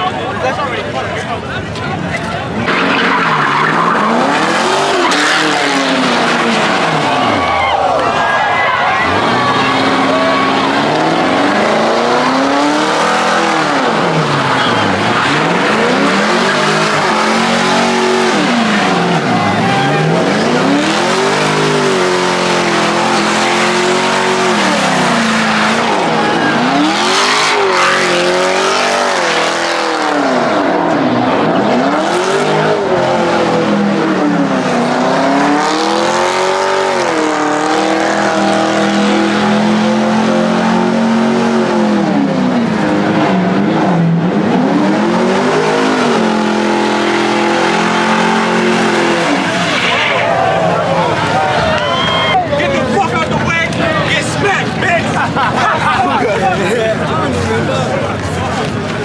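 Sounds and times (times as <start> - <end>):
tyres squealing on pavement: 0.0 - 29.5, 45.7 - 59.0
car engine revving: 0.7 - 59.0.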